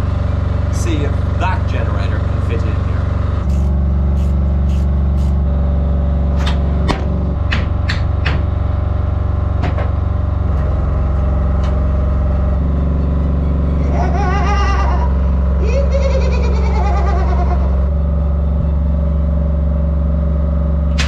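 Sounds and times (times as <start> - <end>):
engine running steadily: 0.0 - 21.0
sharp clicks and knocks: 6.4 - 8.5.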